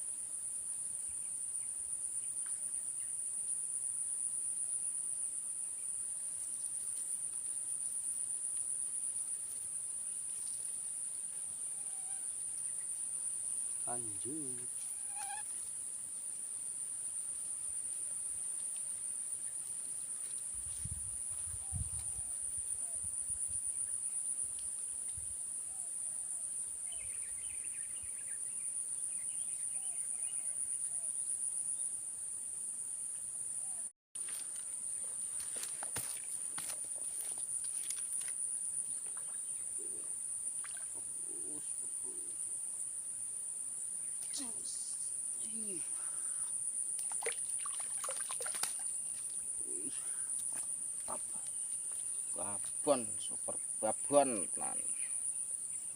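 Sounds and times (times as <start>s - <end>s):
high-pitched insect buzz: 10.1s - 15.8s, 44.0s - 55.9s
high-pitched insect drone: 44.1s - 46.6s.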